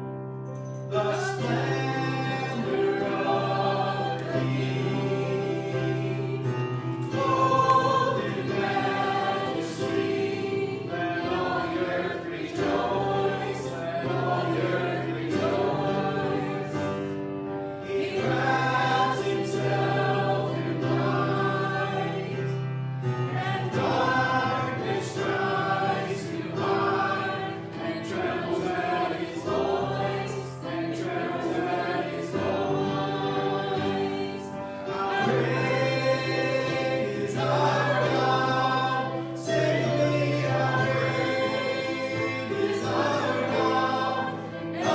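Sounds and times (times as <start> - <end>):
group of voices singing: 0.8 - 44.9.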